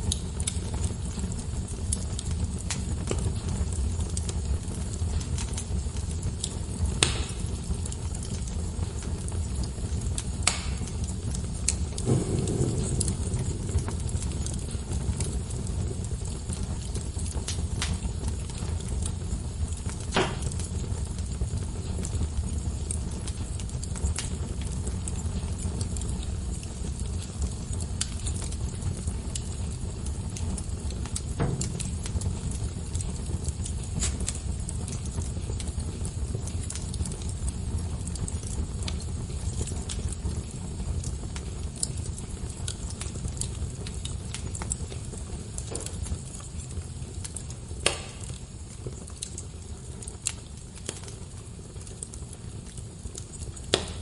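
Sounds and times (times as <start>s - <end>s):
loud fire pops: 0.0s - 54.0s
wood fire crackling: 0.0s - 54.0s.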